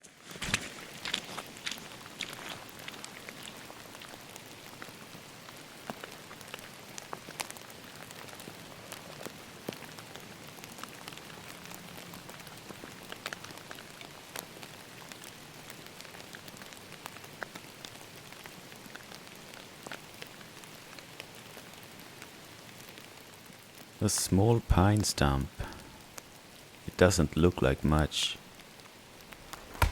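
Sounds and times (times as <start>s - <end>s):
rain hissing: 24.0s - 29.9s
raindrops tapping: 29.1s - 29.9s.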